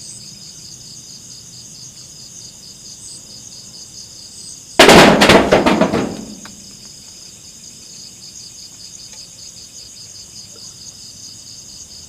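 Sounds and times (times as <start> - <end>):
night insects trilling: 0.0 - 12.0
loud noise: 4.8 - 6.5.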